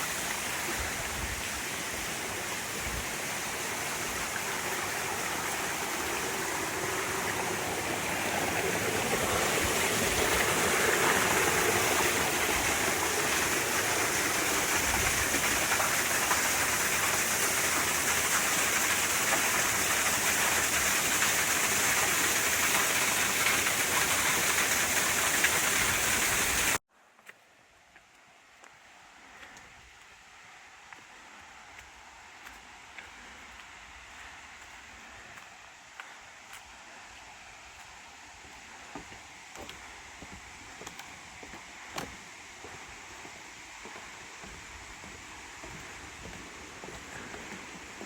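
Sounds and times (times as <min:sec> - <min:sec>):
waterfall rushing: 0:00.0 - 0:26.8, 0:41.8 - 0:48.0.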